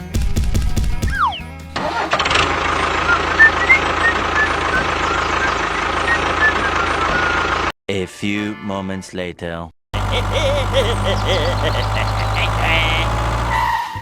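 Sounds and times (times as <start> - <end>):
small engine starting and running: 1.8 - 7.8, 10.0 - 13.9.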